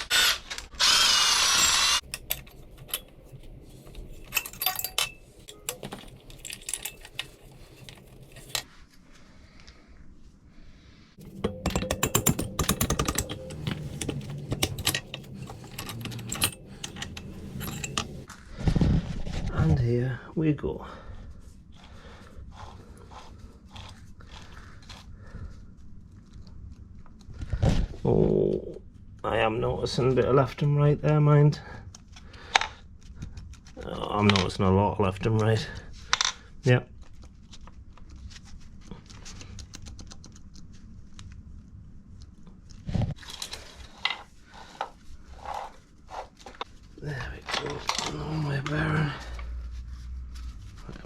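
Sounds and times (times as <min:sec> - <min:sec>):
low background hum: 0:00.2 - 0:51.0
metal engine parts clicking: 0:04.0 - 0:08.7, 0:11.2 - 0:18.3
metal knocks: 0:11.2 - 0:18.2.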